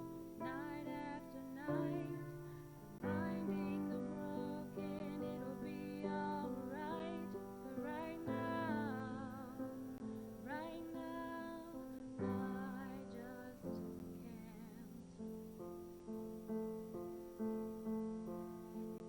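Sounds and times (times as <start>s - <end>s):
woman singing with vibrato: 0.0s - 15.2s.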